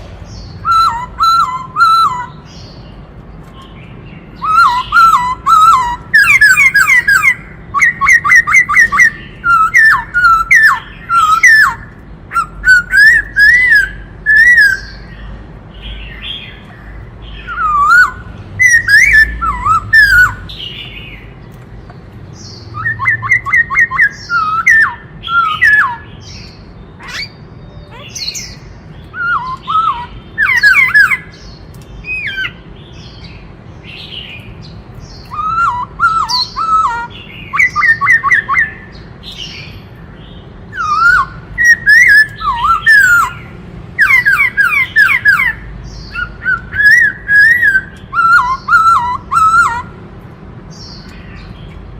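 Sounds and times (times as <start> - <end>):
bird singing whistled phrases: 0.4 - 2.8, 4.2 - 15.2, 17.3 - 21.2, 22.6 - 31.4, 35.1 - 39.6, 40.7 - 50.0.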